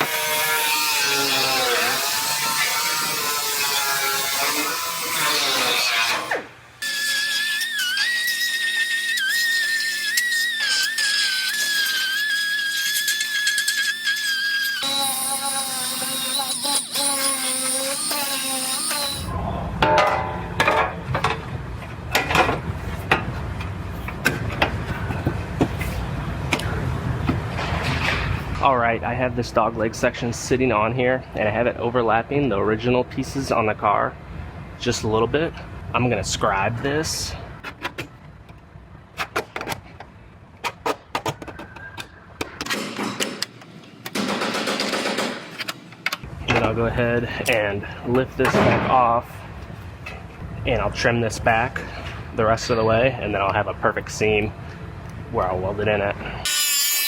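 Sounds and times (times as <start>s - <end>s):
scribe scraping sheet metal: 0.0s - 19.3s.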